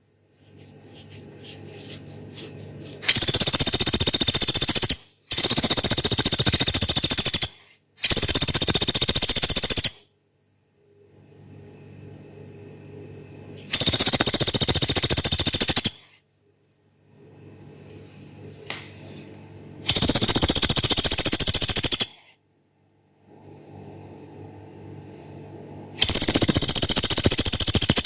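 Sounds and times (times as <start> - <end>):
faint low hum: 0.0 - 6.8, 10.1 - 14.6, 16.0 - 21.2
woodpecker rattling trills: 3.0 - 10.0, 13.8 - 16.0, 19.9 - 22.2, 26.0 - 28.0.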